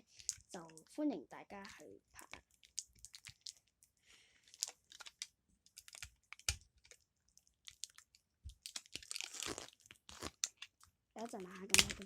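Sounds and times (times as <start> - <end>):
packaging clicks and crinkles: 0.1 - 0.9, 1.6 - 12.0.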